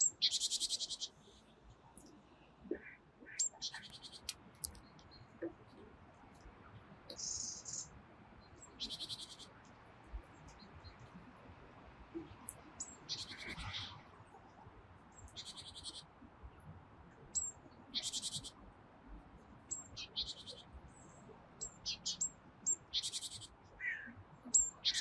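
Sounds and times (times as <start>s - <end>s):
songbird trilling: 0.0s - 1.1s, 17.4s - 18.5s, 21.6s - 25.0s
thin high bird calls: 0.0s - 1.1s, 2.7s - 5.0s, 7.1s - 7.9s, 8.6s - 9.6s, 12.2s - 14.0s, 17.4s - 18.6s, 21.6s - 25.0s.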